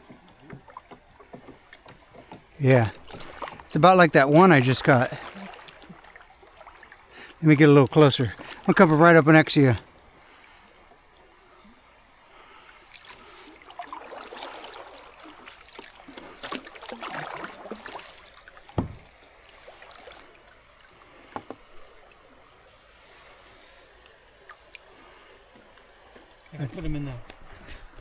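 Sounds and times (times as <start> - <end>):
paddle splashing water: 0.0 - 28.0.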